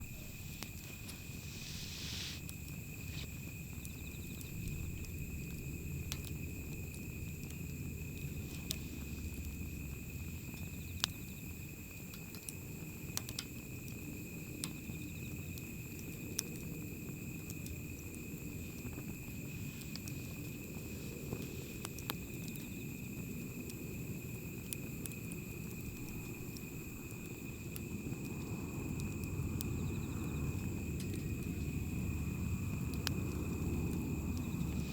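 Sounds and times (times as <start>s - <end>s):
low steady rumble: 0.0s - 11.0s, 25.9s - 34.9s
campfire crackling and popping: 0.0s - 34.9s.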